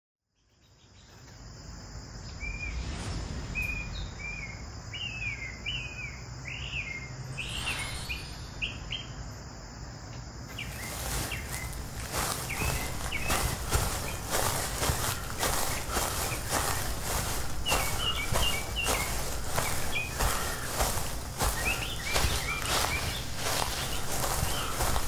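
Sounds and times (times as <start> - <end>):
songbird chirping: 0.2 - 25.0
high insect hiss: 1.0 - 25.0
low wind rumble: 2.1 - 10.0, 10.6 - 25.0
crackling noises: 10.6 - 25.0.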